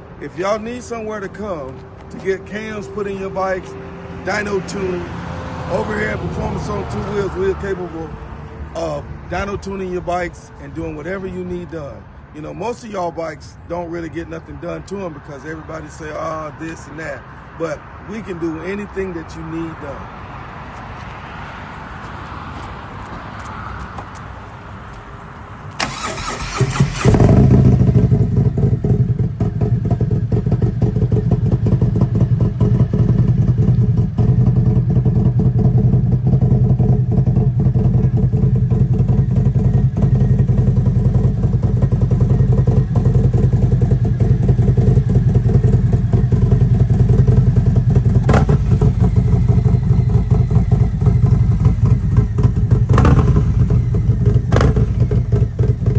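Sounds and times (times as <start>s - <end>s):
motorcycle engine cranking on starter: 25.8s - 27.8s
motorcycle engine idling loudly: 27.0s - 55.9s.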